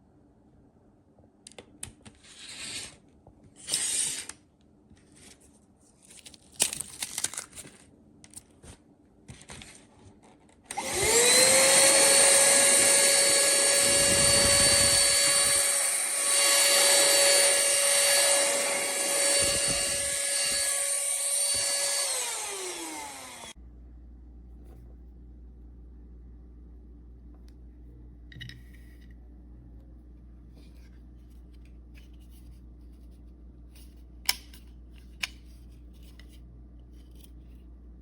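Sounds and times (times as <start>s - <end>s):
handheld vacuum motor whine: 10.7s - 23.6s.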